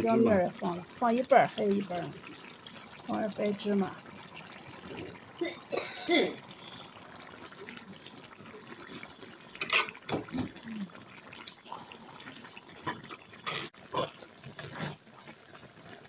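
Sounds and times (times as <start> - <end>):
sauce sizzling in oil: 0.0 - 16.0
spatula scraping a pan: 14.5 - 15.0.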